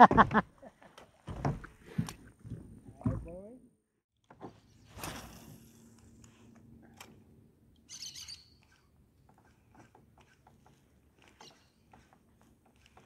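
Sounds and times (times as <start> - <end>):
high bird chirps: 7.9 - 8.6.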